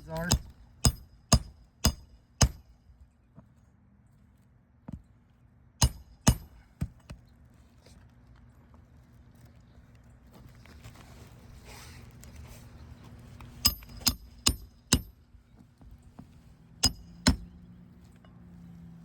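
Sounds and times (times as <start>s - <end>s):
hammer striking roofing nails: 0.0s - 2.7s, 5.8s - 7.0s, 16.8s - 17.5s.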